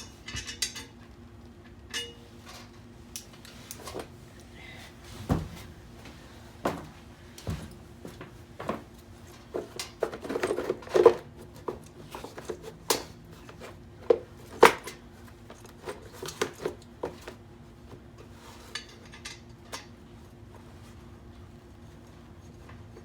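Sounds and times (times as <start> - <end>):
tools clinking and knocking: 0.0 - 1.0, 1.9 - 4.1.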